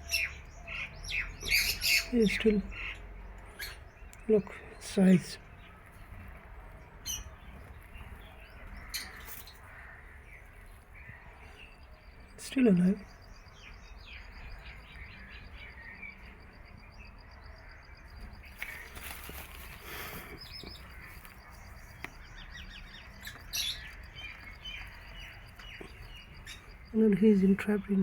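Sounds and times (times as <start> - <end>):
small birds chirping: 0.0 - 28.0
brief rustling: 18.6 - 21.4.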